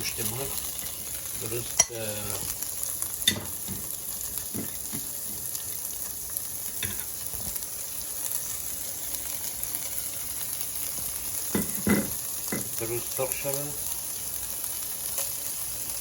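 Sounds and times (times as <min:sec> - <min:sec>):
chicken sizzling in a pan: 0:00.0 - 0:16.0.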